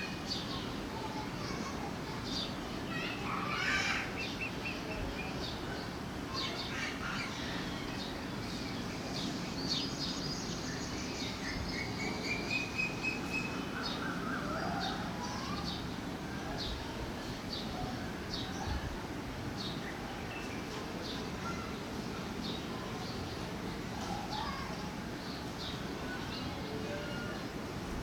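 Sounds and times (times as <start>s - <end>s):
low background noise: 0.0s - 28.0s
songbirds chirping: 3.9s - 16.8s.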